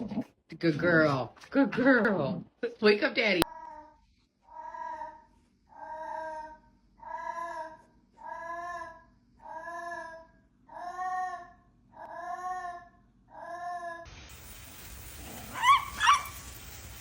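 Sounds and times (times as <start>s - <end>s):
pet animal crying: 15.3s - 16.5s.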